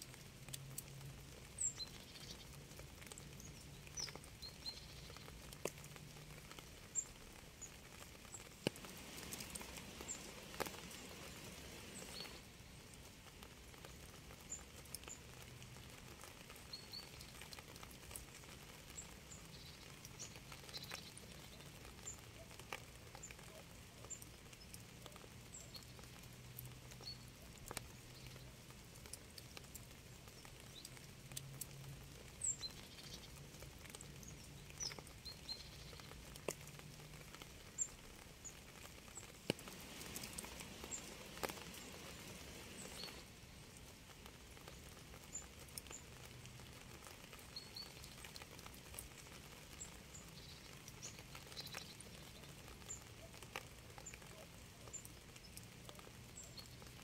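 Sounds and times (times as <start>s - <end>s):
light rain dripping: 0.0s - 57.0s.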